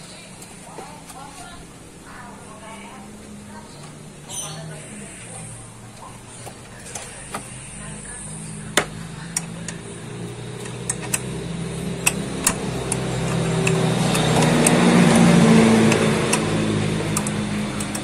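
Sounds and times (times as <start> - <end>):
car engine running: 0.0 - 18.0
sharp clicks: 8.7 - 18.0.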